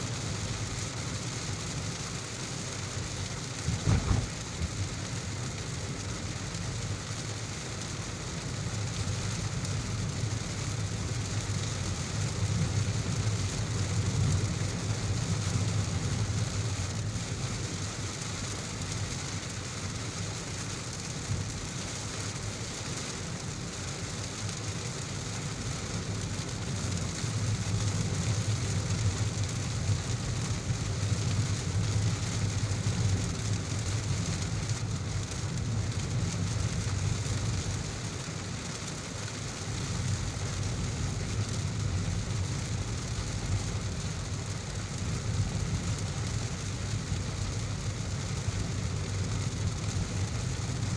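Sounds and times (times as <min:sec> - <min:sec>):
heavy rain falling: 0:00.0 - 0:50.9
low rumble: 0:03.6 - 0:04.8.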